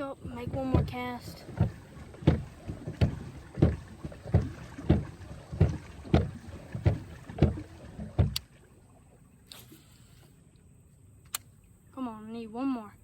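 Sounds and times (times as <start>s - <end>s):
paddles striking water: 0.0s - 9.7s
click: 11.2s - 11.5s.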